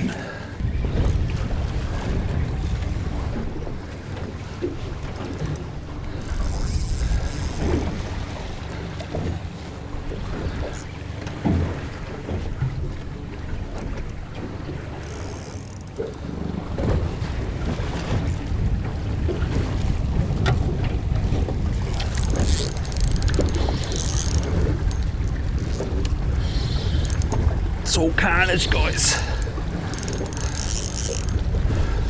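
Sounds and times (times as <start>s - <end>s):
water slapping boat hull: 0.0s - 32.0s.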